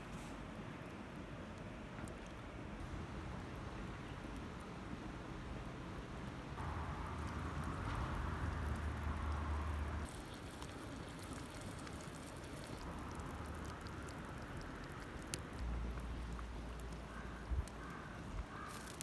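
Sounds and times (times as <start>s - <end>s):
campfire hissing: 6.2s - 19.0s
fire crackles and pops: 6.2s - 19.0s.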